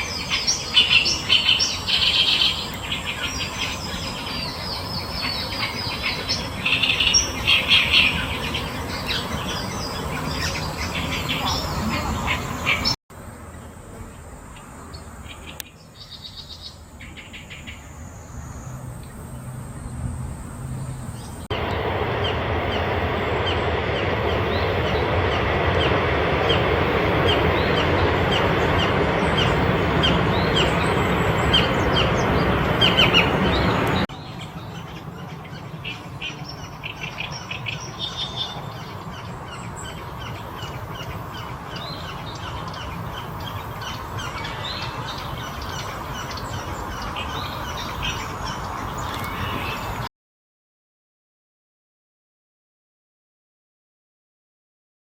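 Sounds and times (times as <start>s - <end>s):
loud steady rushing noise: 0.0s - 13.0s, 18.7s - 50.1s
small birds chirping: 0.0s - 50.1s.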